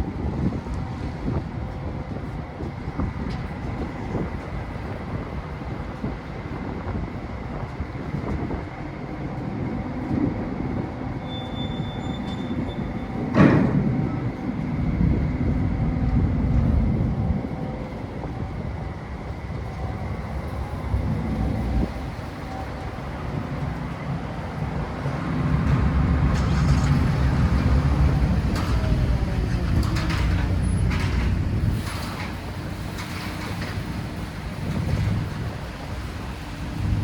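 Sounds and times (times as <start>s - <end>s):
ferry engine rumble: 0.0s - 37.0s
loud metallic bang: 13.3s - 14.2s.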